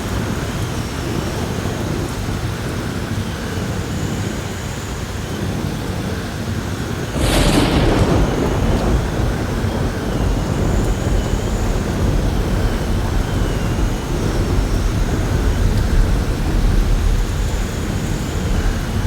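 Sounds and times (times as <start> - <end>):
heavy rain: 0.0 - 19.0
strong wind rumbling: 5.3 - 19.0
high wind whistle: 7.1 - 19.0.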